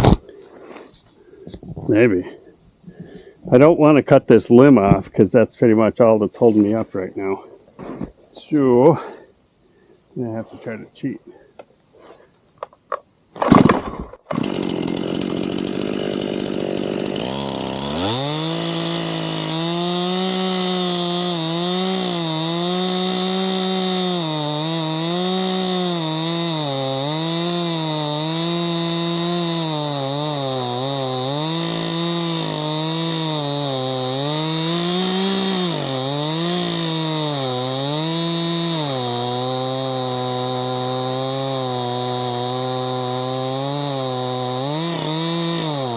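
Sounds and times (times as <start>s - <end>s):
chainsaw cutting wood: 0.0s - 0.2s, 13.4s - 45.9s.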